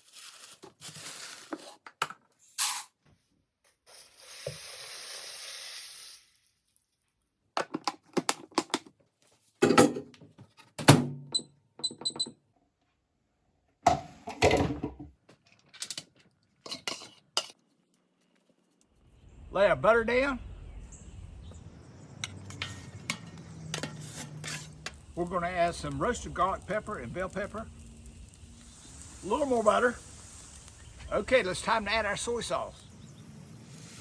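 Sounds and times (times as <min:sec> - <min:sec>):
steady hiss: 0:03.9 - 0:06.4, 0:19.5 - 0:34.0
metal utensils clattering on griddle: 0:15.8 - 0:17.6, 0:22.2 - 0:25.2.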